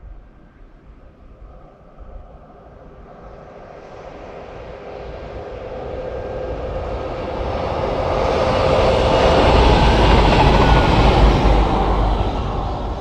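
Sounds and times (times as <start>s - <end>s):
train passing at speed: 1.4s - 13.0s.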